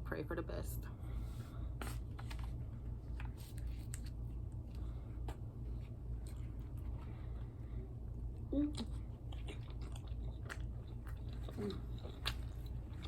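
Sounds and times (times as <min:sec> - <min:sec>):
steady low hum: 0:00.0 - 0:13.0
crisp chewing crackles: 0:08.4 - 0:13.0.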